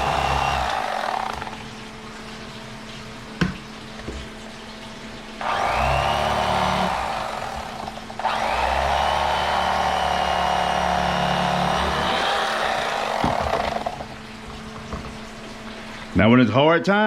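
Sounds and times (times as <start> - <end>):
electric knife motor whining: 0.0 - 1.7, 5.4 - 14.2.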